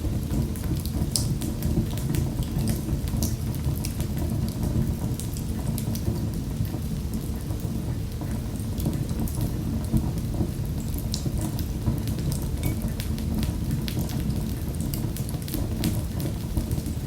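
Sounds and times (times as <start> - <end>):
wood fire crackling: 10.8 - 17.0.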